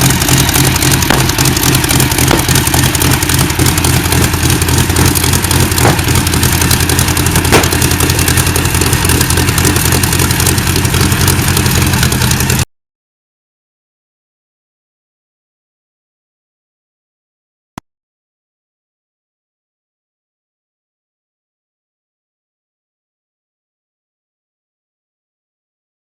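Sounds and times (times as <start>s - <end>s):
big engine running steadily: 0.0s - 12.7s.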